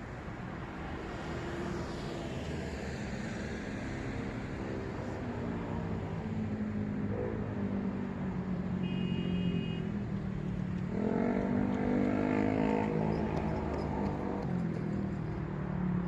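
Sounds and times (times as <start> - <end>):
vehicle accelerating: 10.9 - 15.2.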